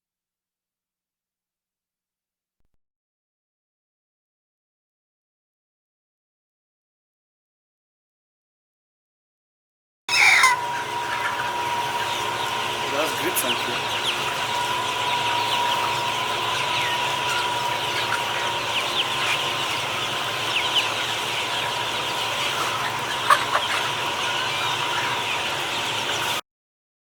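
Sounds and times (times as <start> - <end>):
chickens clucking: 10.1 - 26.4.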